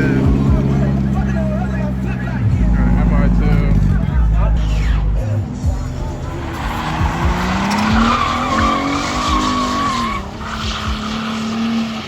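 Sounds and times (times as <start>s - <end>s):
car engine revving hard: 0.0s - 12.0s
tyres squealing: 0.0s - 12.0s.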